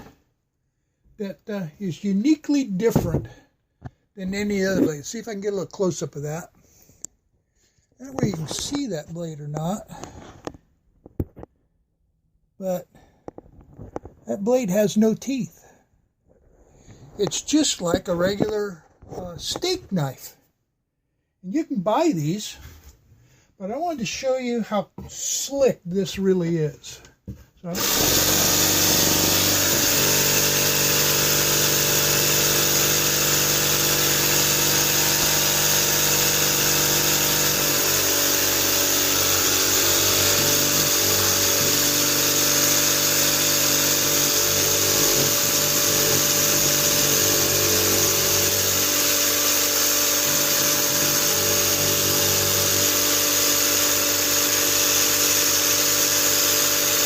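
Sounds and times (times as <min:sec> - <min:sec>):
electric jigsaw cutting fabric: 0:27.7 - 0:57.0.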